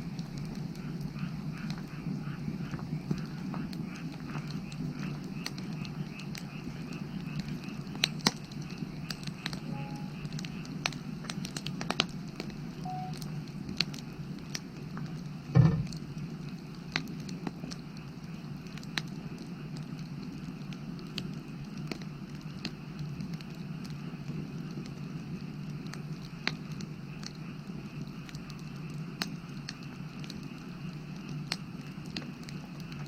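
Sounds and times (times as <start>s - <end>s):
firewood crackling and popping: 0.0s - 33.0s
low background noise: 0.0s - 33.0s
dull thump: 15.6s - 15.9s.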